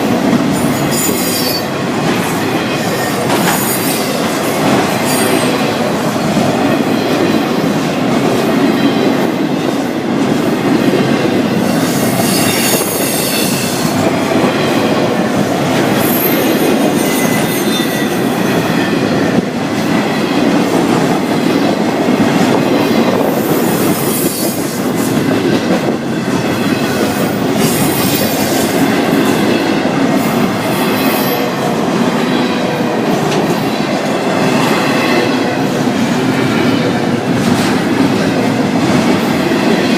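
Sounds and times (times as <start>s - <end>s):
freight train wheels clacking: 0.0s - 39.9s
high-pitched wheel squeals: 16.0s - 18.5s.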